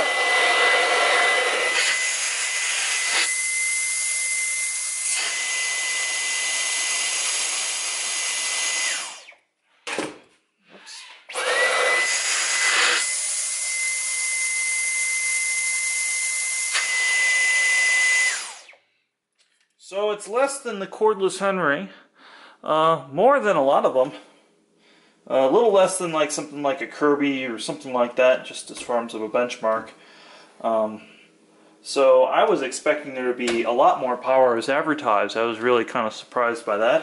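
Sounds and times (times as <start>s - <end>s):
vacuum cleaner whining: 0.0s - 9.4s, 10.7s - 18.8s.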